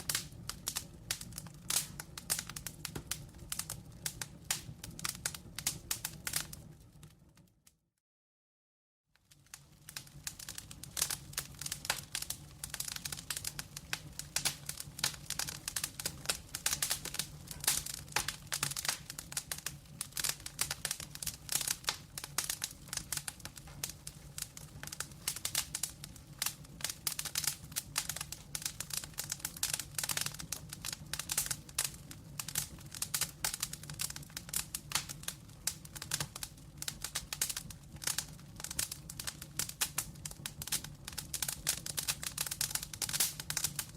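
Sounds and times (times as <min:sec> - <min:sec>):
logs crackling and popping: 0:00.0 - 0:07.6, 0:09.2 - 0:43.9
low fire rumble: 0:00.0 - 0:07.6, 0:09.2 - 0:43.9.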